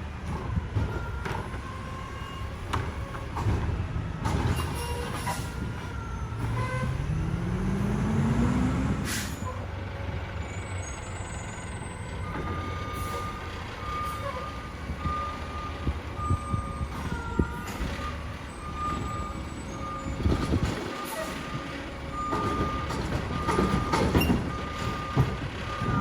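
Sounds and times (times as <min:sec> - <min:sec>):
diesel engine revving: 0:00.0 - 0:26.0
air brakes hissing: 0:09.0 - 0:09.6.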